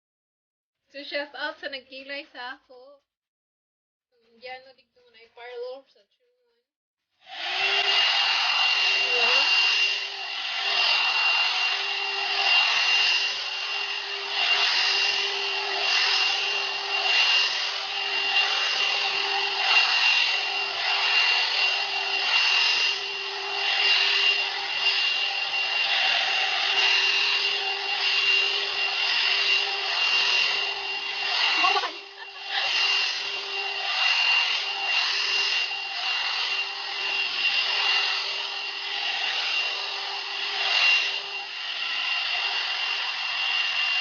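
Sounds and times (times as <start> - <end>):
hot air brush whining: 7.2 - 44.0
bristles rubbing hair: 28.0 - 35.2.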